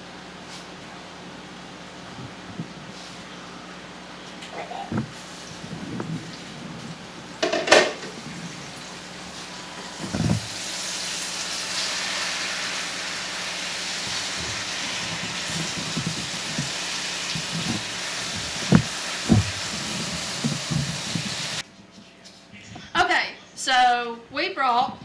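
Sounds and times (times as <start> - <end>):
cookware clatter: 7.4 - 8.2
knocks: 7.4 - 8.2
food sizzling in hot oil: 7.4 - 21.6.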